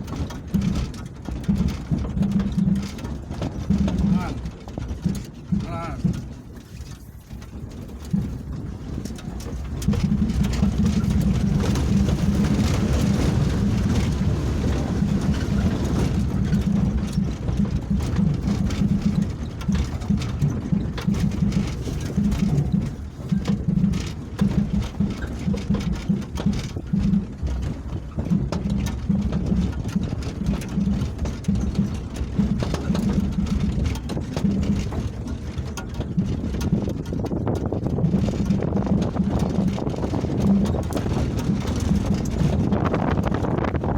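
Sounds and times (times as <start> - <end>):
vehicle engine rumble: 0.0 - 43.9
wind noise: 0.0 - 43.9.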